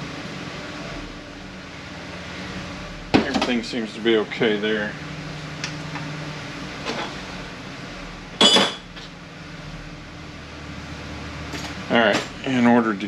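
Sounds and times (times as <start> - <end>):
ringing metal clank: 8.4 - 8.9.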